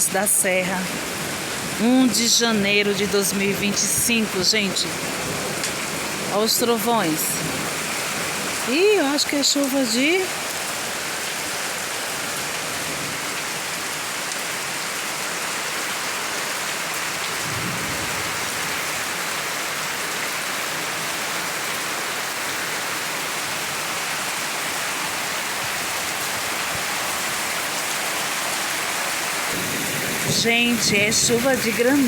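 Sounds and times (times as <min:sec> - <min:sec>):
heavy rain and hail: 0:00.0 - 0:32.0
low rumble of thunder: 0:17.4 - 0:18.9, 0:29.5 - 0:31.4.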